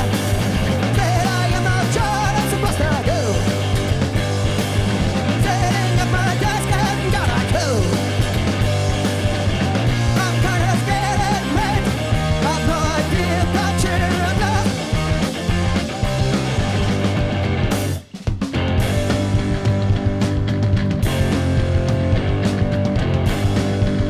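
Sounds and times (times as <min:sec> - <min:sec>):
rock band playing live: 0:00.0 - 0:24.0
person singing or shouting: 0:00.8 - 0:03.6, 0:05.4 - 0:08.1, 0:10.1 - 0:14.8.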